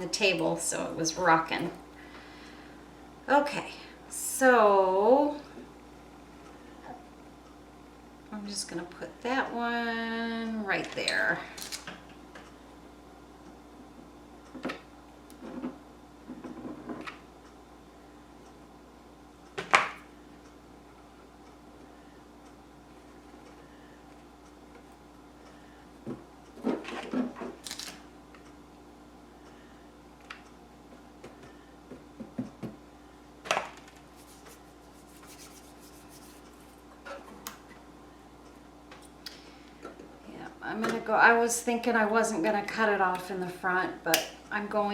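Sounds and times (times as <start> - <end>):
scrape or rustle: 34.2 - 36.8.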